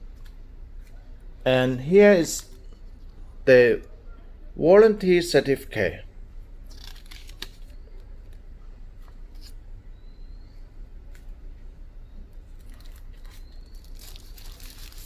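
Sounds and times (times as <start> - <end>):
low steady hum: 0.0 - 15.0
paper and packaging rustling: 6.7 - 7.8, 12.6 - 15.0.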